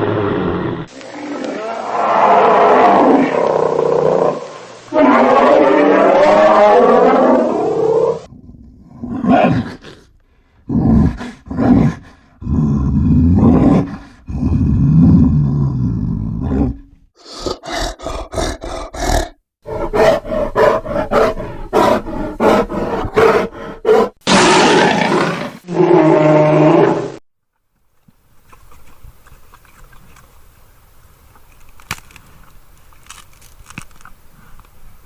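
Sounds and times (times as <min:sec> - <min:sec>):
bear roaring: 0:00.0 - 0:10.1, 0:10.7 - 0:27.2
bear growling: 0:00.0 - 0:27.2.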